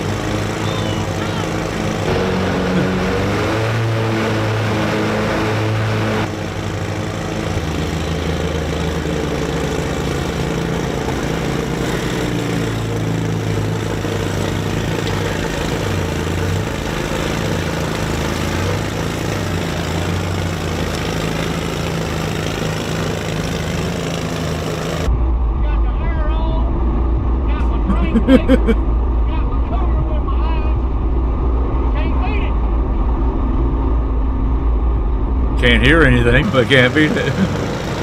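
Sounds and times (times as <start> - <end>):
lawnmower engine running: 0.0 - 25.1, 35.6 - 38.0.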